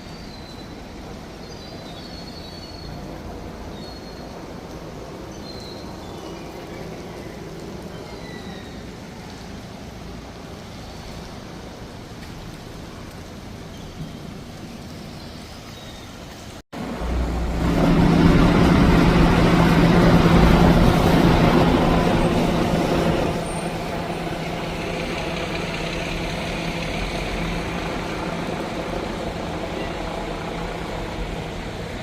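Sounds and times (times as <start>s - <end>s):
heavy vehicle engine running: 16.8s - 32.0s.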